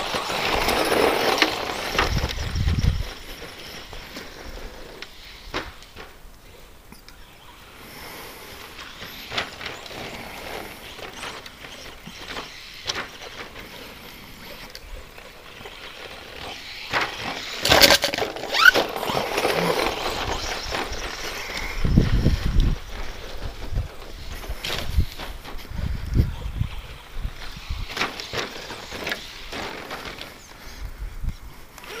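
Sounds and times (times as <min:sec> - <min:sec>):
electric toy truck motor: 0:00.0 - 0:05.5, 0:08.5 - 0:25.2
tyres on dirt: 0:00.0 - 0:32.0
brief rising squeal: 0:18.4 - 0:21.0.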